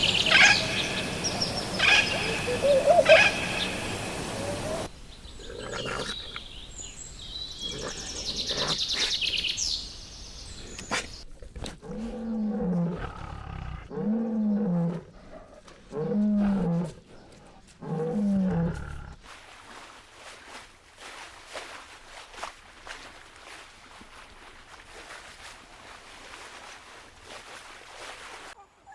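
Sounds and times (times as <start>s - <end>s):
low rising and falling animal calls: 0.0s - 6.4s
high pulsed animal calls: 0.0s - 6.5s.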